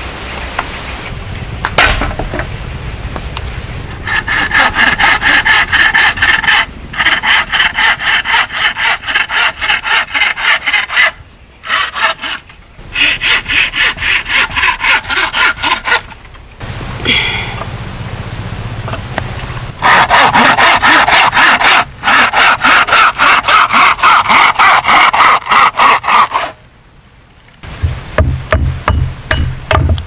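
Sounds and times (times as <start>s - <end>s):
hand saw cutting wood: 4.0s - 16.3s, 19.8s - 26.6s.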